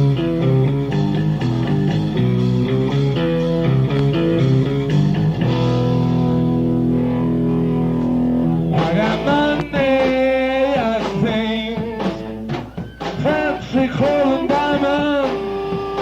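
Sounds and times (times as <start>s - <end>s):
electric guitar riff: 0.0s - 10.4s, 11.7s - 16.0s
bass guitar: 0.0s - 16.0s.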